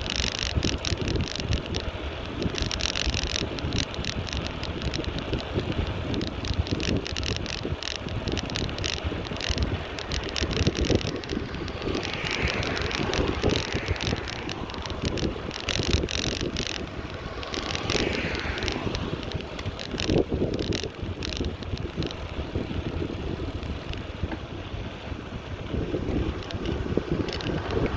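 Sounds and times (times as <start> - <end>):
bicycle clicks and rattles: 0.0 - 27.9
wind buffeting microphone: 0.0 - 27.9.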